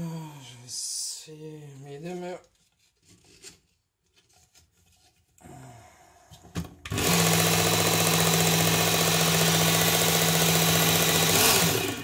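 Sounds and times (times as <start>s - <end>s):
faint handling noises: 2.1s - 5.4s
sharpener motor and belt running: 6.9s - 12.0s.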